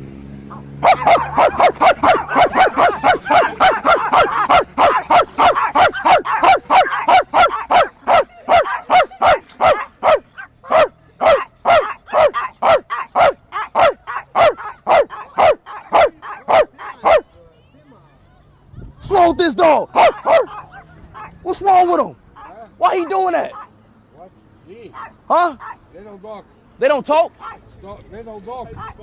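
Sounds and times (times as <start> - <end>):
dog barking: 0.5 - 17.2, 20.0 - 21.4, 22.4 - 23.7, 24.9 - 25.8, 27.4 - 27.6.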